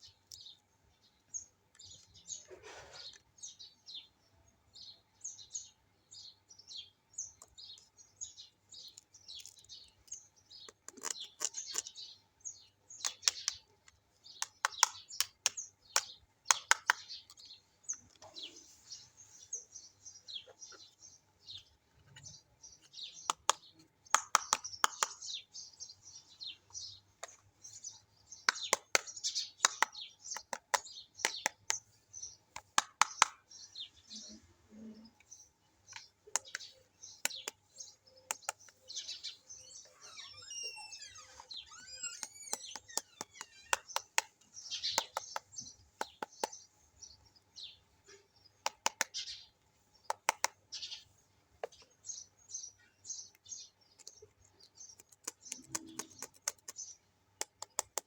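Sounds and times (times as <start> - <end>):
high squeaky glides: 39.7 - 43.9
plastic clicks and taps: 57.4 - 58.0.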